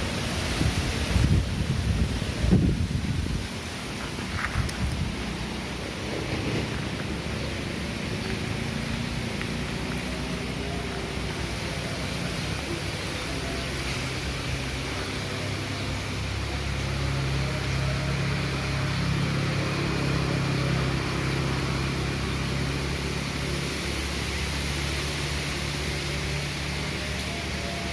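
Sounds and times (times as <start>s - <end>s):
strong wind blowing: 0.0s - 9.8s.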